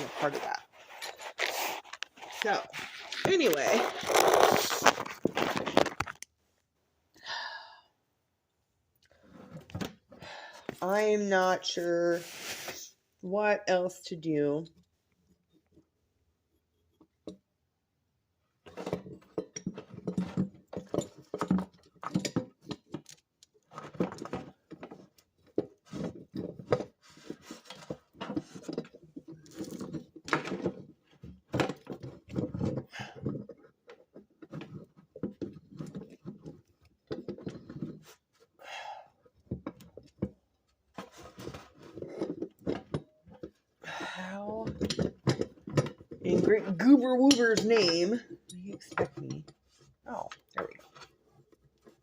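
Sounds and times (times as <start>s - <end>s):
tools knocking and clattering: 18.6s - 38.2s, 39.4s - 43.8s, 44.5s - 52.0s.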